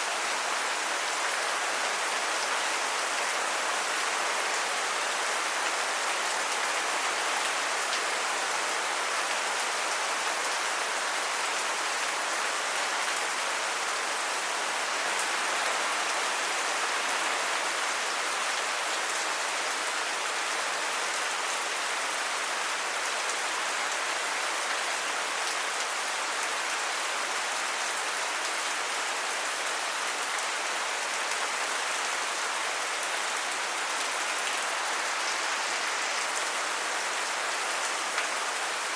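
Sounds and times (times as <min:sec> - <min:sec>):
heavy rain hissing: 0:32.6 - 0:38.9.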